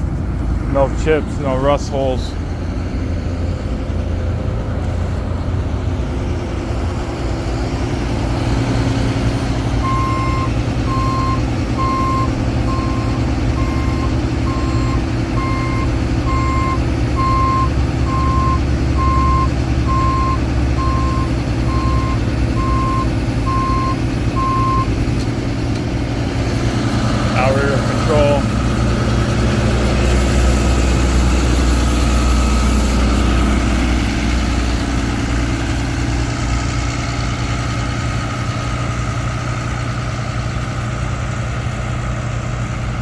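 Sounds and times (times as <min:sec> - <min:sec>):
truck diesel engine idling: 0:00.0 - 0:43.0
warning alarm beeping: 0:09.8 - 0:24.9.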